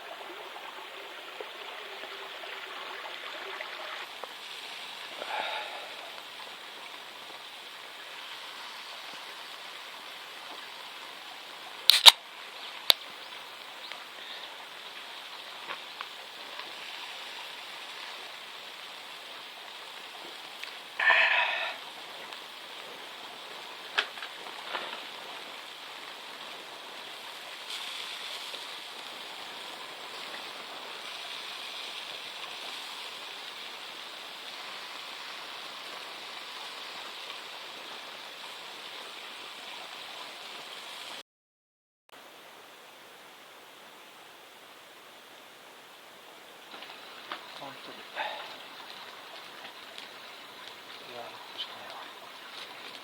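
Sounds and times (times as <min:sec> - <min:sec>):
light rain falling: 0:00.0 - 0:41.2, 0:42.2 - 0:53.0
small clicks: 0:11.9 - 0:12.2.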